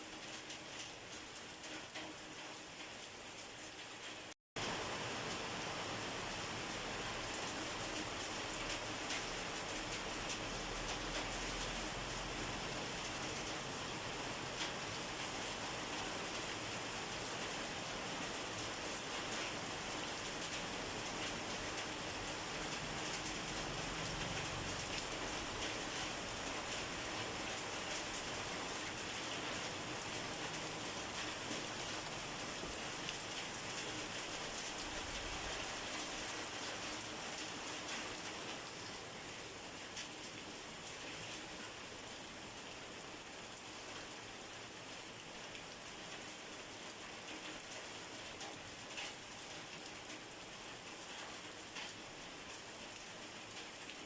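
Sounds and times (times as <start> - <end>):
individual raindrops: 0.0 - 54.0
rain falling: 0.0 - 54.0
raindrop ticks: 7.9 - 11.8, 14.6 - 14.8, 48.2 - 50.2, 51.1 - 52.6.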